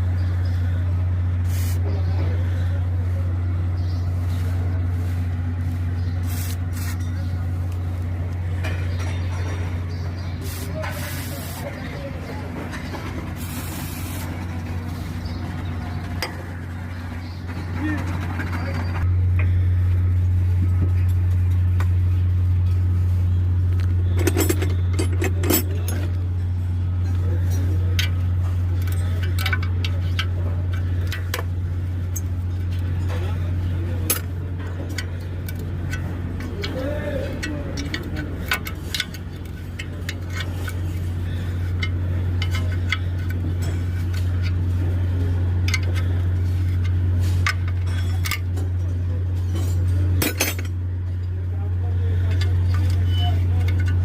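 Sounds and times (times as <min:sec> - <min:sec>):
steady low hum: 0:00.0 - 0:54.0
metal tools clinking: 0:08.5 - 0:10.2, 0:24.1 - 0:33.4, 0:34.0 - 0:44.7, 0:45.6 - 0:50.8, 0:52.3 - 0:54.0.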